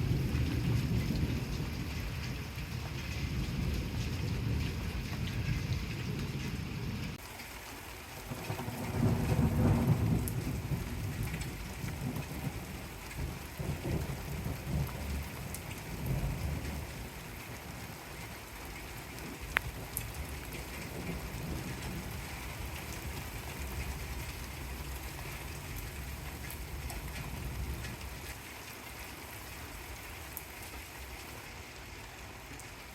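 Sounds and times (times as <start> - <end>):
thunder rumbling: 0.0 - 7.2, 8.2 - 28.4
rain falling: 0.0 - 32.9.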